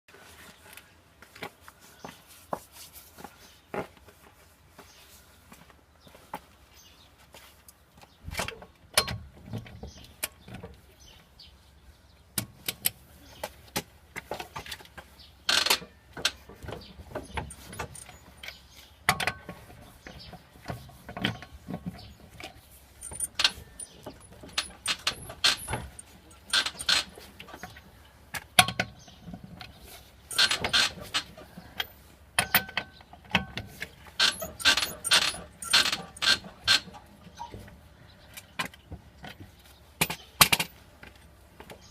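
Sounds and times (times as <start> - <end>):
metallic clinks and knocks: 15.7 - 19.6, 21.1 - 27.8, 30.3 - 37.5.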